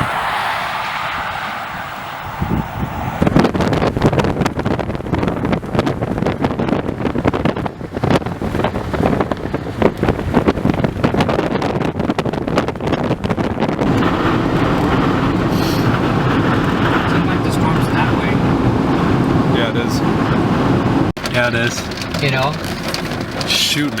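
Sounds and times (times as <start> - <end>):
vehicle and road noise: 0.0 - 24.0
wind buffeting microphone: 0.0 - 24.0.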